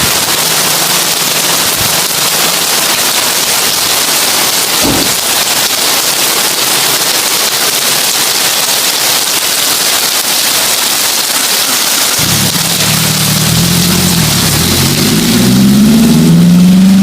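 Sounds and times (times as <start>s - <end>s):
heavy rain on a tin roof: 0.0s - 17.0s
low thump: 4.8s - 5.2s.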